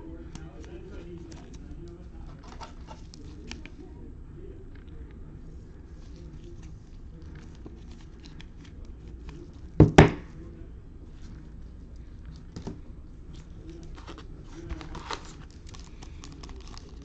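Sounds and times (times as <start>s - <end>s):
cards rustling and clicking: 0.3s - 3.9s, 5.9s - 9.8s, 11.1s - 17.0s
knocks on a table: 9.8s - 10.3s.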